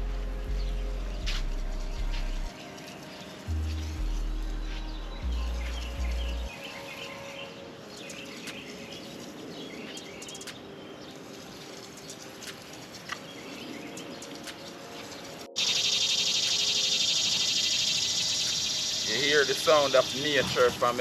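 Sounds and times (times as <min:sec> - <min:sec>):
wild birds chirping: 0:00.0 - 0:21.0
fast-pulsing insect trill: 0:15.6 - 0:20.8.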